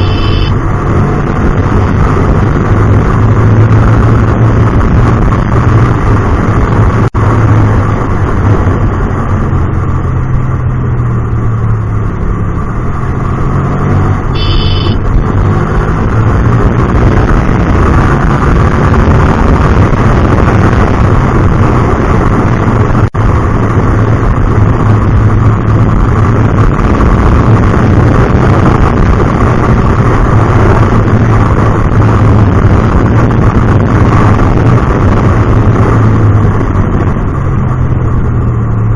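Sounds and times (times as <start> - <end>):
short high beep: 0.0 - 0.6, 14.4 - 15.0
motorcycle engine running: 0.0 - 38.9.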